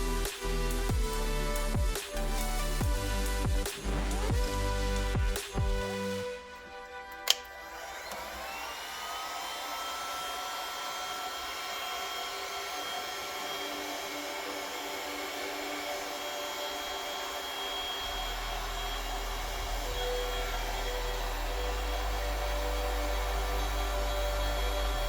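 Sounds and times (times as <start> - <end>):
hot-air blower motor whining: 6.8 - 25.0.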